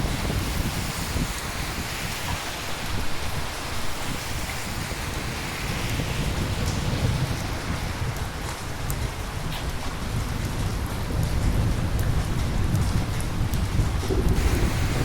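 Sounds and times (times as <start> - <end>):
rain on hard surfaces: 0.0 - 15.0
low rumble: 13.9 - 15.0.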